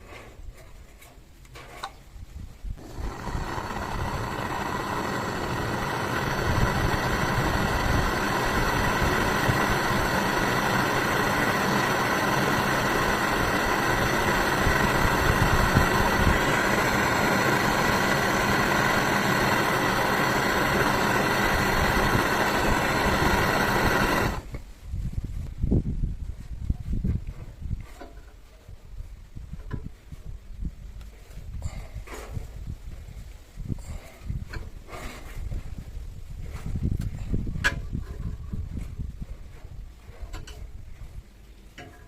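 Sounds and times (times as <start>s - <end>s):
power tool motor whining: 2.8s - 24.6s.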